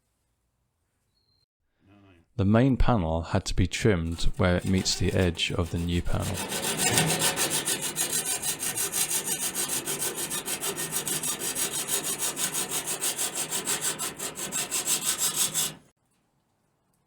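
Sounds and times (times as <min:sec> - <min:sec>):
metal panel being cut: 0:04.1 - 0:15.9.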